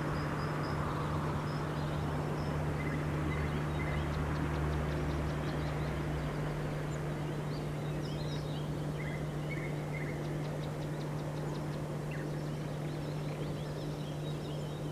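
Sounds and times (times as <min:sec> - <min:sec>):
low continuous hum: 0:00.0 - 0:14.9
songbirds singing: 0:00.0 - 0:14.9.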